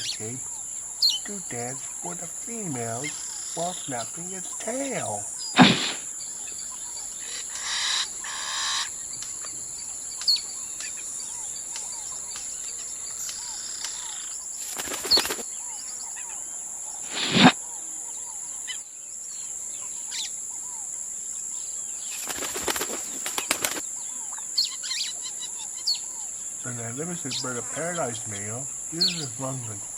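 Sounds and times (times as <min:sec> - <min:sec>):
high insect drone: 0:00.0 - 0:29.9
small bird chirps: 0:00.0 - 0:29.9
flutter of wings: 0:01.7 - 0:06.1, 0:11.7 - 0:15.6, 0:17.0 - 0:17.6, 0:22.1 - 0:24.0
sharp snaps: 0:05.6 - 0:06.1, 0:17.1 - 0:17.6.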